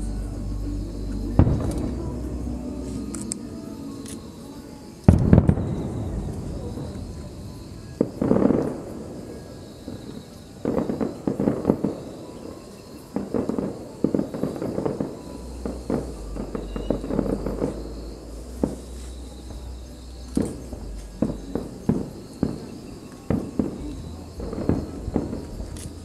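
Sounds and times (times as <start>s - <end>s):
low rumble: 0.0s - 3.6s, 23.8s - 26.0s
fireworks bangs and crackles: 0.0s - 26.0s.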